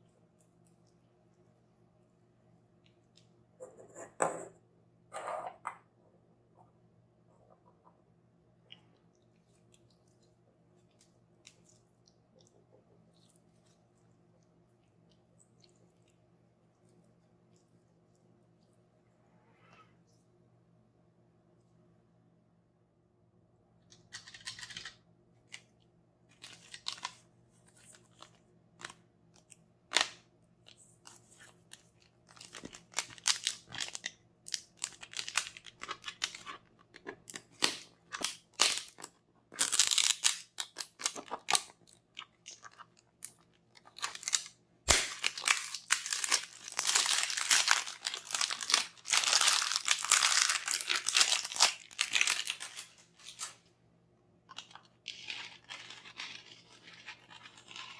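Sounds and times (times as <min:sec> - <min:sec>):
packaging crinkling and tearing: 0:31.4 - 0:53.6, 0:54.5 - 0:57.9
packaging taps and crackles: 0:31.7 - 0:53.5.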